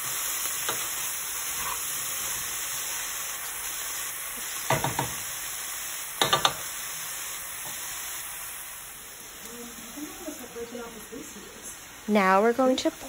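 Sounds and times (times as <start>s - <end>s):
vegetables sizzling in oil: 0.0s - 13.0s
wooden spoon knocking on pot: 4.7s - 5.2s, 6.2s - 6.6s.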